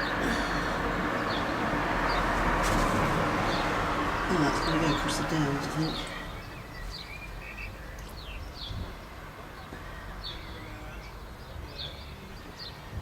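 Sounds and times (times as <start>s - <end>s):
low outdoor background rumble: 0.0s - 13.0s
small bird chirping: 3.5s - 13.0s.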